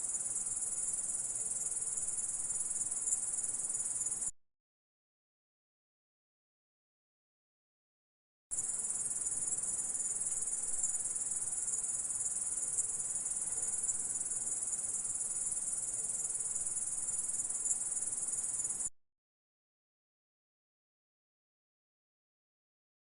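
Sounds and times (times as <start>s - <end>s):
insect buzzing trill: 8.6s - 18.9s.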